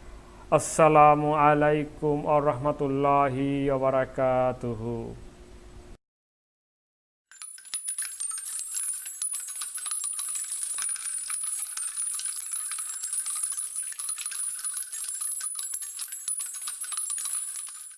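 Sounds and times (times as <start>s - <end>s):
high metallic jingling: 7.3s - 17.9s.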